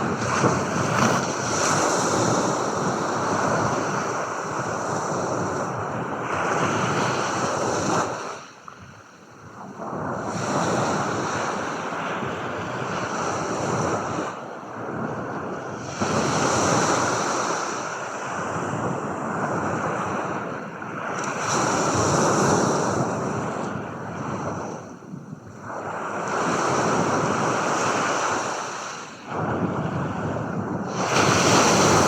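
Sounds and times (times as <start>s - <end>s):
ocean waves washing in: 25.6s - 32.0s.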